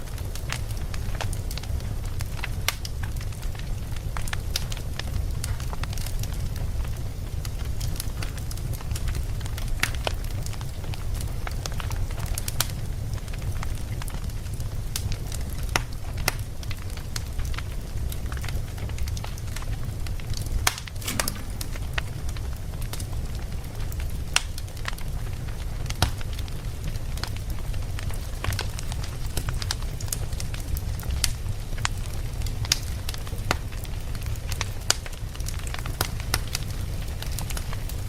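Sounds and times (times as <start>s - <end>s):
flames rumbling: 0.0s - 38.0s
wood fire crackling and popping: 0.0s - 38.0s.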